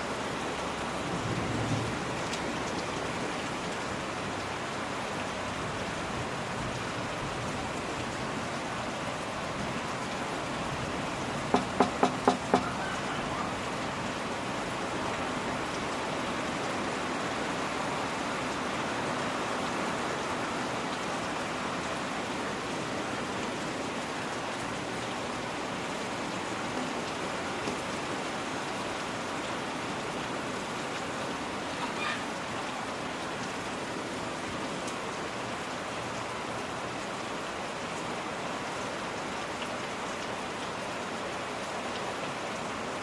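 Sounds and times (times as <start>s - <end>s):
rain hiss: 0.0s - 43.0s
quick sharp knocks: 11.5s - 12.7s.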